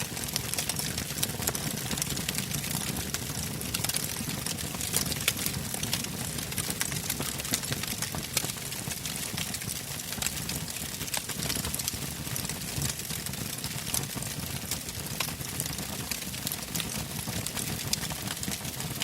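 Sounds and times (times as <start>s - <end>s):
campfire burning: 0.0s - 19.0s
crackles and pops of burning logs: 0.0s - 19.0s.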